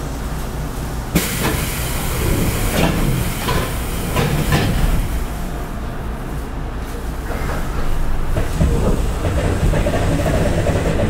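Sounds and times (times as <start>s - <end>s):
train interior rumble: 0.0s - 11.0s
wheels clacking over rail joints: 1.1s - 5.1s, 7.2s - 11.0s.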